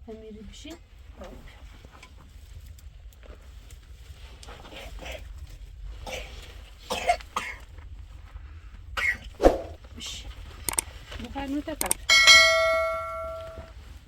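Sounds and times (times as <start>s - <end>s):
steady low rumble: 5.2s - 14.0s
person coughing: 6.1s - 7.6s.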